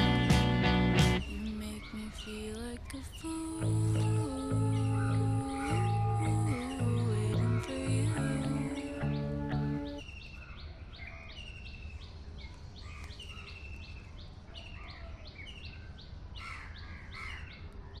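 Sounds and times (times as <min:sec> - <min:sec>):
song music: 0:00.0 - 0:01.3, 0:03.6 - 0:10.0
small birds chirping: 0:00.0 - 0:18.0.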